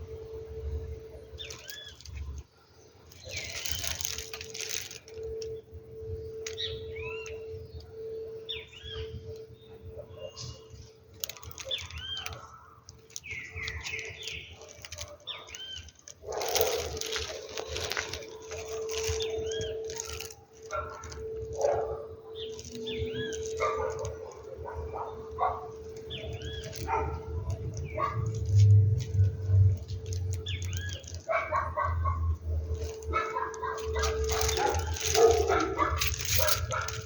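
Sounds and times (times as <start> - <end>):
faint steady hum: 0.0 - 37.0
rustling noise: 0.7 - 7.4, 11.1 - 37.0
small birds chirping: 1.2 - 31.4, 32.7 - 37.0.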